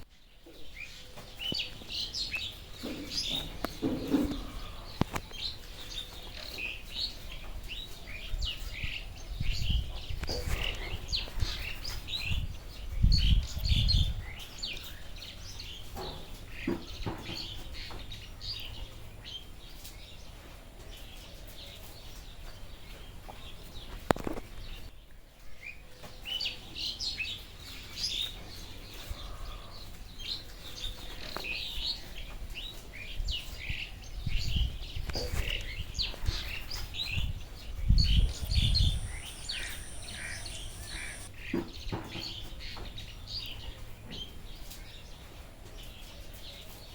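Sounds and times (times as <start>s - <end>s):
small birds chirping: 31.5s - 45.2s.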